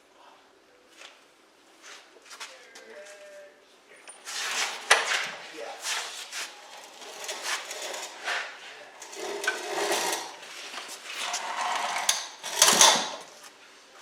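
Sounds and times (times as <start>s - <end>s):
metal scraping: 4.1s - 13.4s
metal clanks and knocks: 6.8s - 10.4s, 11.3s - 13.3s.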